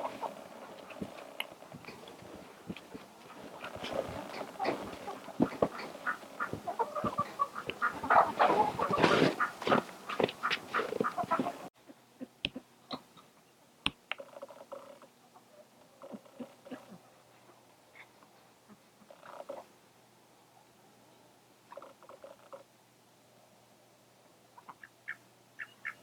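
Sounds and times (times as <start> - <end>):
chickens clucking: 0.0 - 13.4, 24.6 - 26.0.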